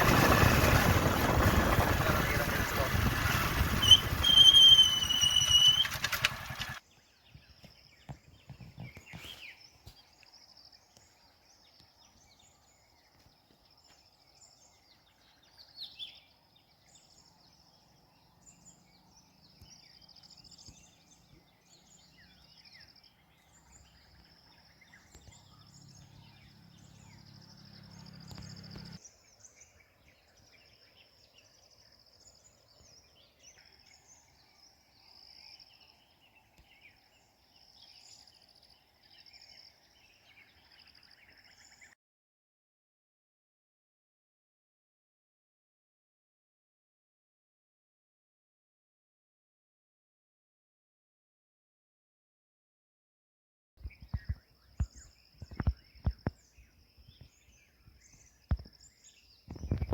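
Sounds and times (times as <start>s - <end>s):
bird chirps: 2.1s - 42.0s, 53.8s - 59.9s.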